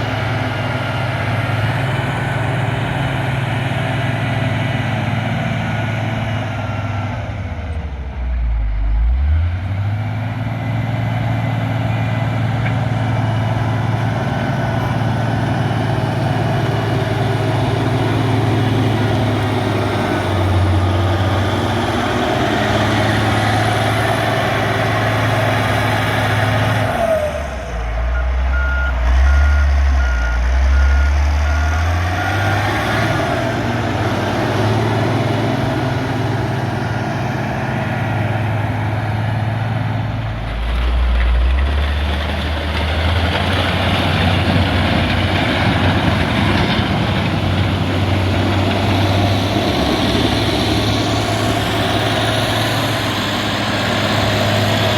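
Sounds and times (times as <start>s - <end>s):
diesel engine under load: 0.0s - 54.9s
reversing alarm beeping: 28.1s - 32.5s.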